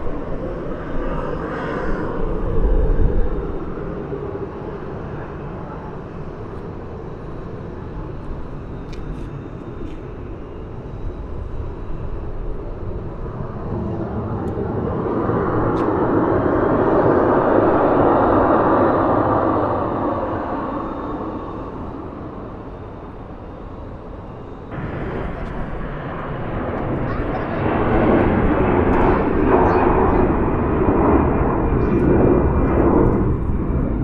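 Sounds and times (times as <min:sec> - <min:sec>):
jet airliner engine rush: 0:00.0 - 0:34.0.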